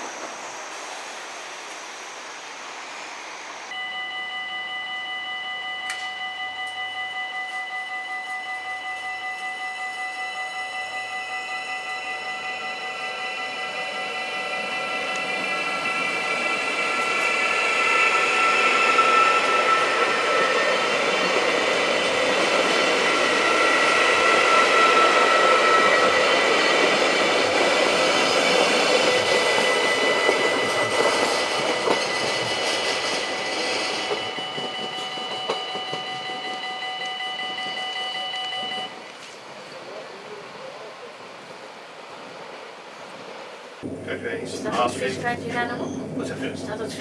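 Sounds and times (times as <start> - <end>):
train drive whine: 0.0 - 47.0
train running past: 0.0 - 47.0
high ringing tones: 3.7 - 39.2.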